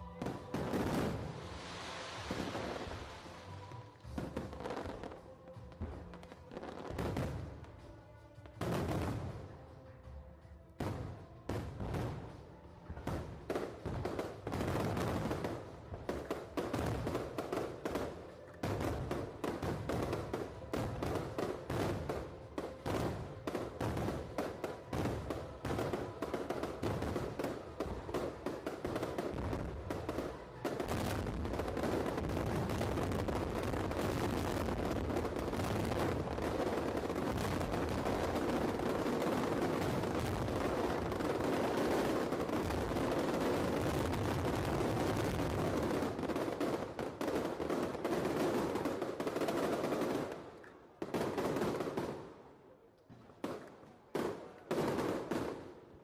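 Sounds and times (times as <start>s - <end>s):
fireworks crackling and banging: 0.0s - 56.0s.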